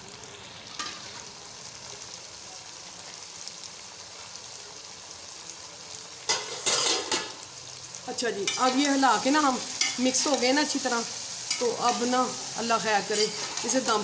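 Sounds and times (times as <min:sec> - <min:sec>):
curry sizzling in a pot: 0:00.0 - 0:14.0
spoon stirring and scraping: 0:13.2 - 0:13.8.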